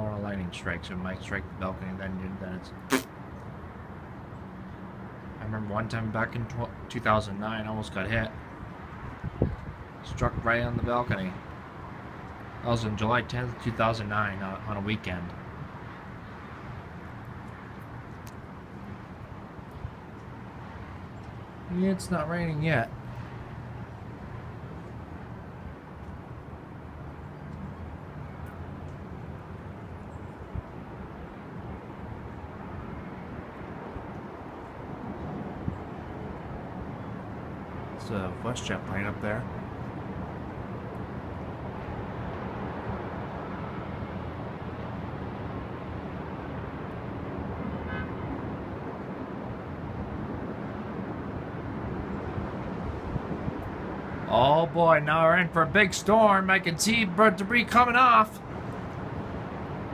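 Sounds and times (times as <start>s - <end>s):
strong wind gusting: 8.2s - 12.1s, 39.5s - 59.9s
wind buffeting microphone: 8.4s - 11.0s.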